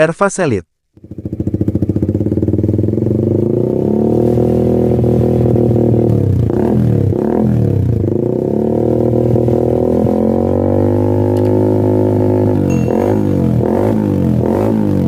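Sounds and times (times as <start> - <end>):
motorcycle engine droning: 1.0 - 15.0.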